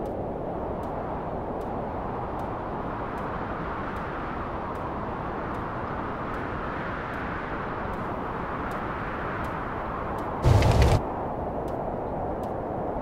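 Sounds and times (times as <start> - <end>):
steady rumbling noise: 10.4 - 11.0.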